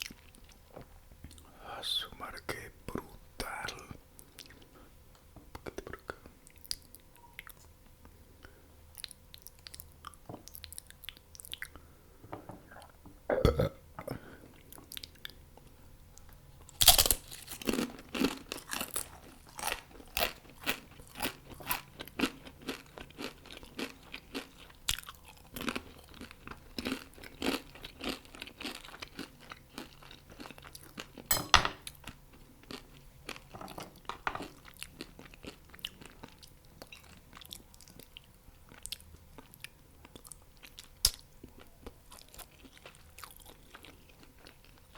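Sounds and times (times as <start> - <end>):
crunchy chewing of fried chicken: 0.0 - 1.5, 2.1 - 5.0, 5.6 - 12.0, 12.7 - 44.9
loud crunching bites: 16.8 - 21.8.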